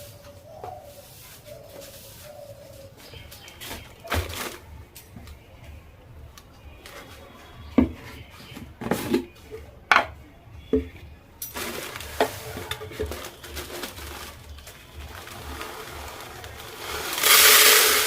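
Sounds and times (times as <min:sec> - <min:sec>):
dishes and utensils clattering: 0:07.8 - 0:15.7.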